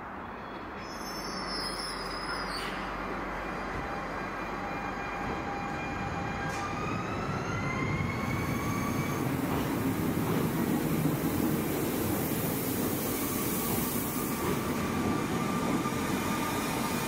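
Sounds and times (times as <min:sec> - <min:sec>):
train wheels rumbling on rails: 0:05.1 - 0:17.0.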